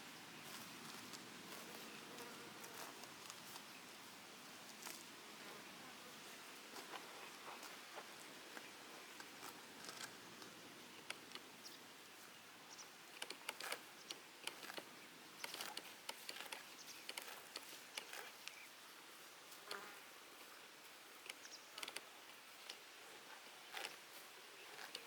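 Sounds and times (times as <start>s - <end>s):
grazing animals rustling and clicking: 0.4s - 3.8s, 6.5s - 18.6s, 21.2s - 25.0s.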